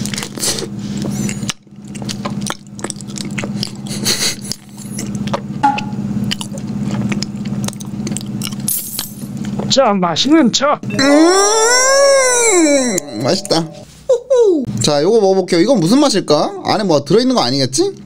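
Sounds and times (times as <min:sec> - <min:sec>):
chewing with moist smacks: 0:00.0 - 0:05.6, 0:06.2 - 0:08.7
steady low hum: 0:00.0 - 0:14.9.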